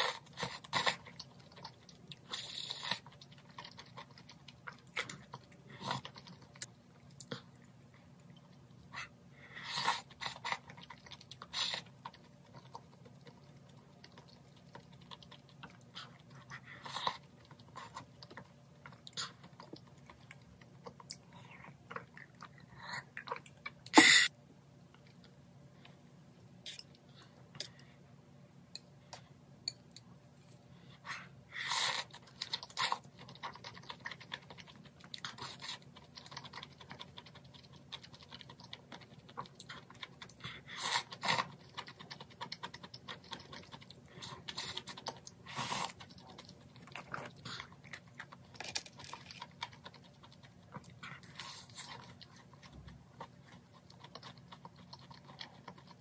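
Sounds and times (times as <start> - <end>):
person chewing and eating: 0.0 - 24.3, 28.7 - 56.0.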